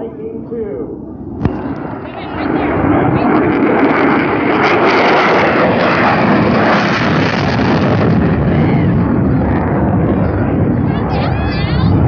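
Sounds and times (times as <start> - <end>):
jet engine roaring: 0.0 - 12.0.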